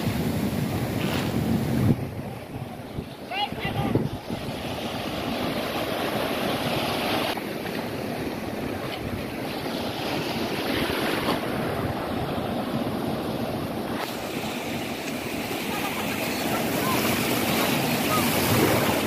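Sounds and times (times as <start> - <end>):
wind buffeting microphone: 0.0 - 7.4
surf washing onto beach: 0.0 - 19.0.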